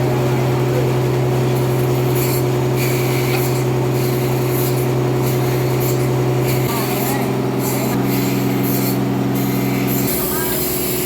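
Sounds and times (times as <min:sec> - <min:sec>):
sawmill saw cutting log: 0:01.6 - 0:11.0.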